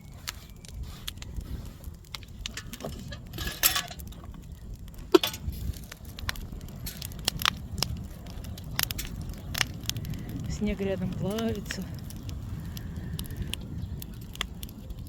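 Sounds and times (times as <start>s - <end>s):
bonfire crackling: 0.0s - 15.0s.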